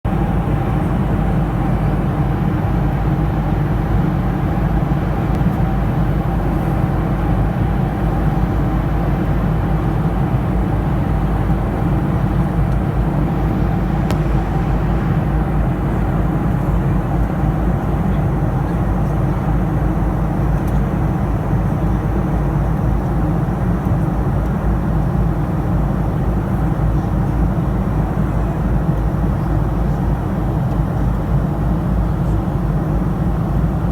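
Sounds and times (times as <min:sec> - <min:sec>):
aeroplane engines droning: 0:00.1 - 0:33.9
steady hum: 0:08.3 - 0:18.2.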